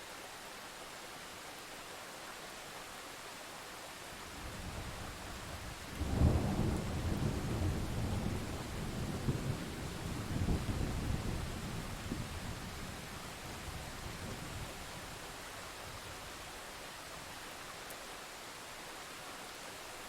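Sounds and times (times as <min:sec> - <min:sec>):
steady rain hiss: 0:00.0 - 0:20.0
thunder rumbling and clapping: 0:05.9 - 0:12.8.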